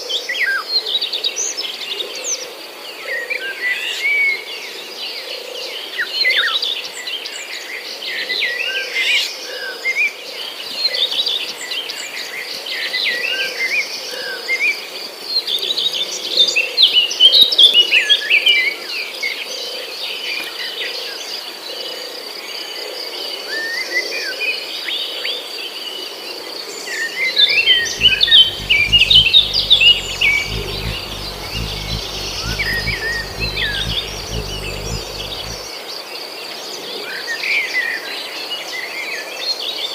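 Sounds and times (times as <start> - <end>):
high insect drone: 27.5 - 35.7
small birds chirping: 27.5 - 35.7
low rumble: 27.6 - 35.7.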